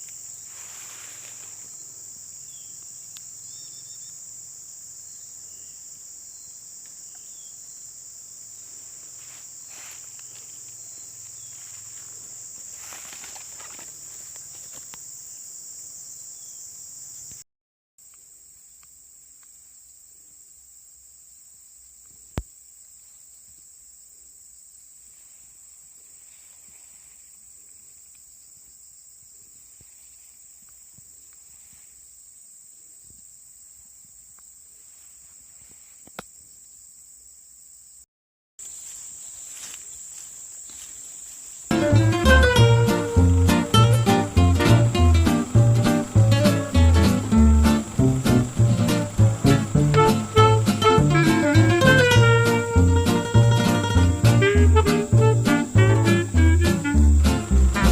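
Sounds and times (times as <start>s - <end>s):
insects chirping: 0.0s - 17.4s, 18.0s - 57.9s
rustling: 0.3s - 2.0s, 8.6s - 15.0s, 25.0s - 28.2s.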